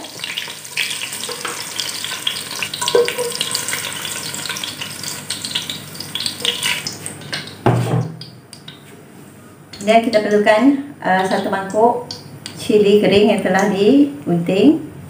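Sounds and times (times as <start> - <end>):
shallots sizzling in hot oil: 0.0 - 7.6.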